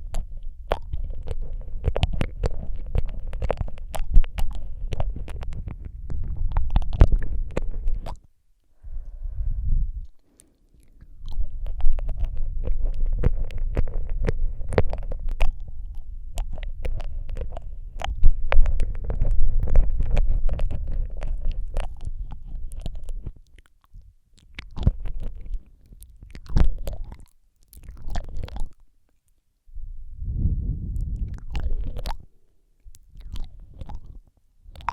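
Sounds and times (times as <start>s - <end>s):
wet mouth clicks and smacks: 0.0s - 8.7s, 10.0s - 29.4s, 31.0s - 34.9s
low rumble: 8.8s - 23.0s, 29.7s - 32.4s.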